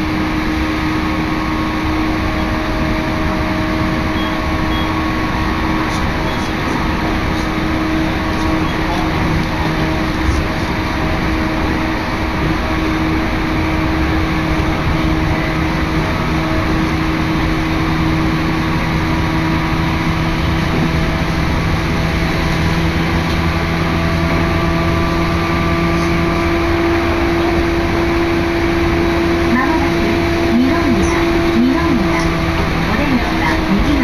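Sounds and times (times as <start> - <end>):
train motor hum: 0.0 - 34.0
train wheels rumbling on rails: 0.0 - 34.0.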